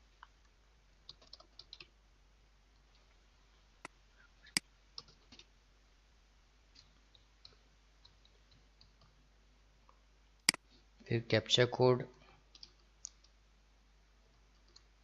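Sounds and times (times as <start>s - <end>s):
computer mouse clicks: 1.1s - 1.9s, 4.5s - 5.5s, 12.5s - 13.4s, 14.5s - 14.9s.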